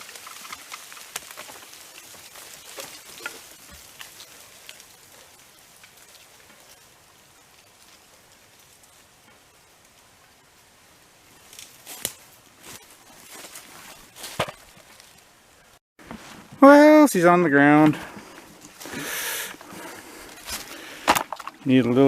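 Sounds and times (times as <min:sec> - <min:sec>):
twigs and branches snapping: 0:00.0 - 0:06.8, 0:11.4 - 0:15.3
falling leaves hissing: 0:00.0 - 0:22.0.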